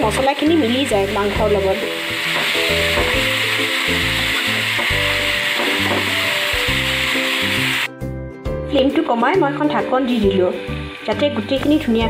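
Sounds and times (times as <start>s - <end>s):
meat sizzling in hot oil: 0.0s - 7.9s.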